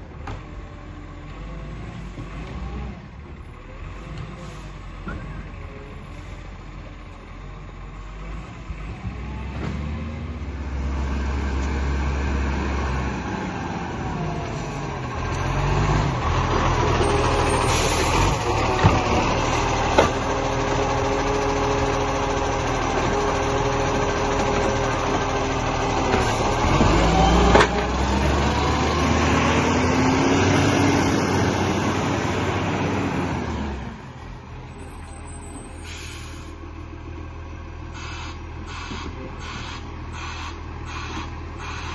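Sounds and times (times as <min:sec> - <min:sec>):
garbage truck engine revving: 0:07.7 - 0:34.5.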